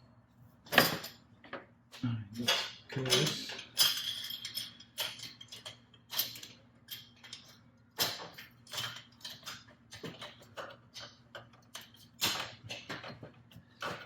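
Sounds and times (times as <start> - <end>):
metal tools clinking on metal parts: 2.4 - 13.2.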